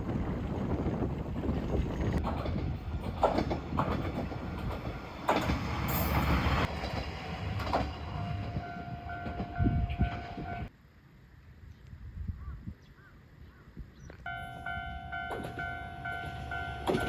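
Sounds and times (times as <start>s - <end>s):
railcar rumbling on track: 0.0s - 10.7s, 14.2s - 17.0s.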